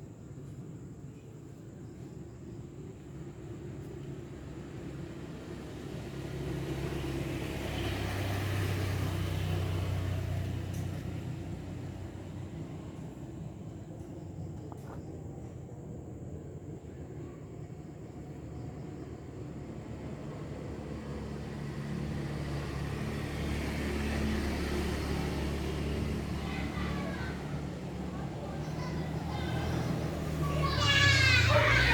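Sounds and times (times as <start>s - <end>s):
vehicle passing by: 3.8s - 15.0s, 18.5s - 31.9s
vehicle engine running: 19.8s - 31.9s.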